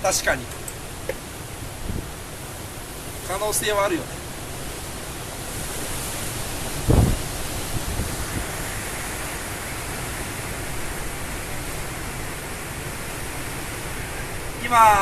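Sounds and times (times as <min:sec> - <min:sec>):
strong wind on microphone: 0:01.8 - 0:02.3, 0:05.5 - 0:12.2.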